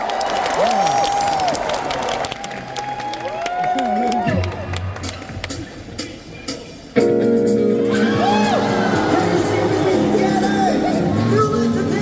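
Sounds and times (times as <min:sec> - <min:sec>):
crowd cheering with whoops: 0:00.0 - 0:04.8, 0:07.9 - 0:10.7
live funk band playing: 0:04.1 - 0:12.0.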